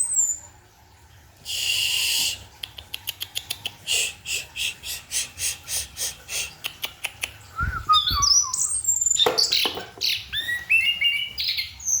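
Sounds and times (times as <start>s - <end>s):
thrush singing whistled phrases: 7.6s - 9.0s.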